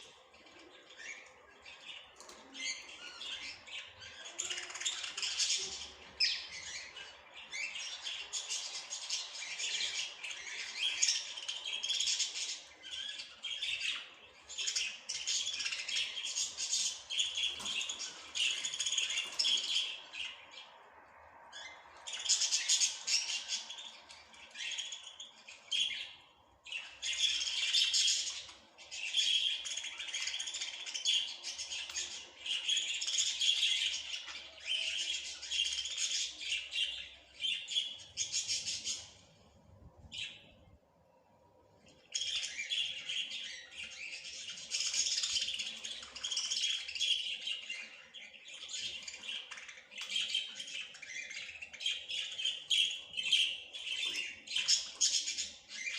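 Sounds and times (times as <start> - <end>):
songbirds twittering: 0.0 - 55.9.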